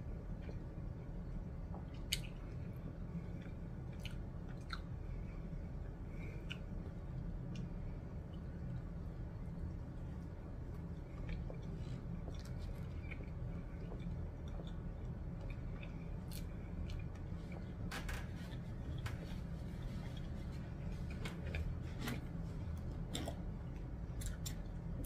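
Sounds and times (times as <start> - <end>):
low hum: 0.0 - 25.0
chewing with wet mouth clicks: 1.7 - 2.6, 3.4 - 4.9, 6.4 - 8.9, 10.6 - 17.7.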